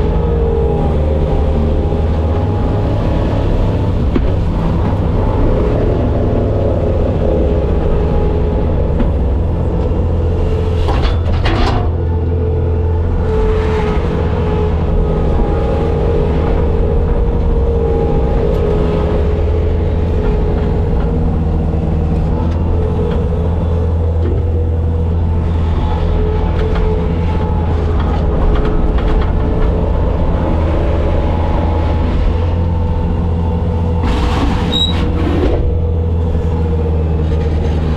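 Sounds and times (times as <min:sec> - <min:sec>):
diesel engine rumbling: 0:00.0 - 0:37.9
knocks and rattles: 0:10.8 - 0:12.1.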